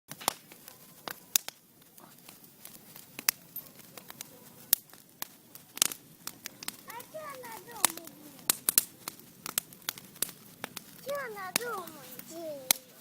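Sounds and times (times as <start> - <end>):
sharp clicks and snaps: 0.1 - 12.9
faint hiss: 0.3 - 13.0.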